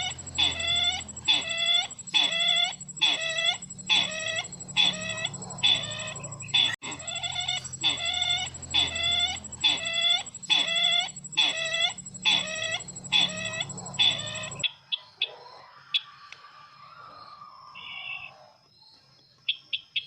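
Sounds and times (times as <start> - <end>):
electronic whine and hum: 0.0 - 14.6
harsh ringing bird calls: 0.0 - 14.7.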